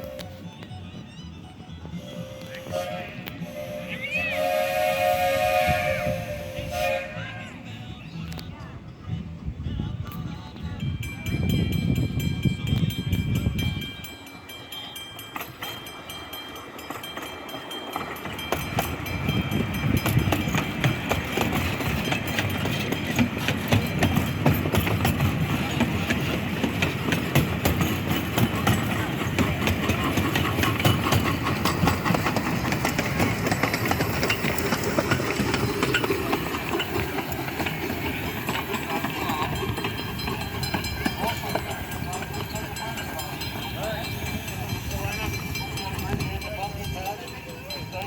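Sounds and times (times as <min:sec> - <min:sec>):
train rumble: 0:00.0 - 0:48.0
train wheels clicking over rails: 0:11.6 - 0:48.0.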